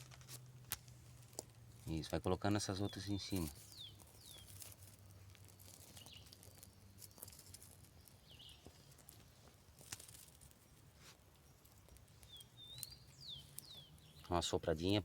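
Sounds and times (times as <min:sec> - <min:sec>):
twigs snapping on a fire: 0:00.0 - 0:14.3
faint high bird chirps: 0:02.8 - 0:04.7, 0:11.4 - 0:14.5.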